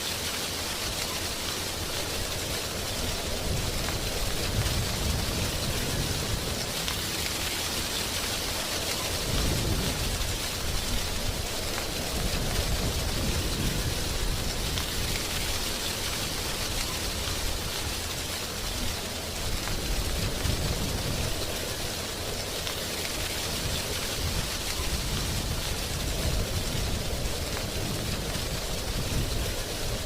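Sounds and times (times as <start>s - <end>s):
wind rustling dry leaves: 0.0s - 30.0s.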